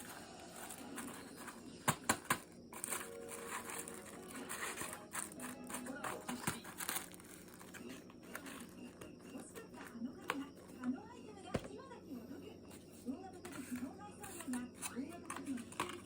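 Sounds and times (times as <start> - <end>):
packaging crinkling: 0.0 - 10.4.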